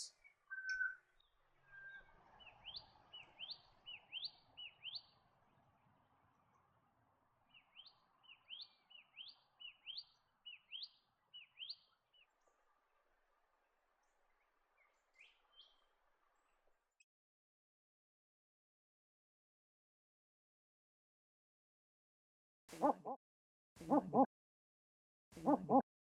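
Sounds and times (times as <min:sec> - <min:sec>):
bird whistling: 0:00.5 - 0:01.0.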